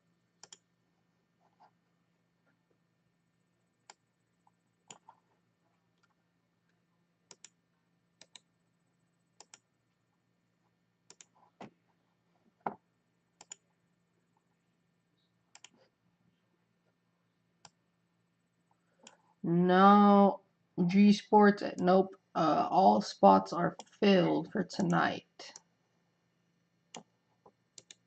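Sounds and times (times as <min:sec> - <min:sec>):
computer mouse clicks: 0:00.4 - 0:00.6, 0:04.8 - 0:05.2, 0:07.3 - 0:07.6, 0:08.2 - 0:08.5, 0:09.4 - 0:09.7, 0:11.1 - 0:11.7, 0:13.4 - 0:13.7, 0:15.5 - 0:15.8, 0:17.6 - 0:17.8, 0:26.9 - 0:28.0.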